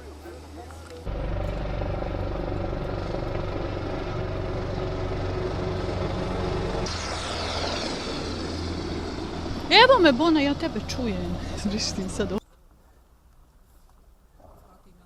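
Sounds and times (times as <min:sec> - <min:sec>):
motor engine running: 0:01.0 - 0:12.4
high rushing sweep: 0:01.1 - 0:10.8.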